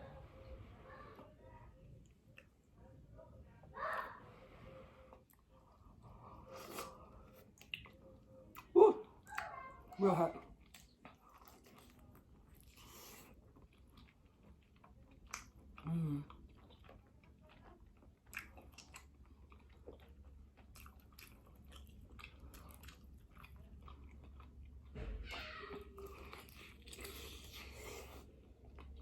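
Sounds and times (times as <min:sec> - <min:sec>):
person chewing and smacking: 0:05.3 - 0:09.6, 0:10.4 - 0:29.0.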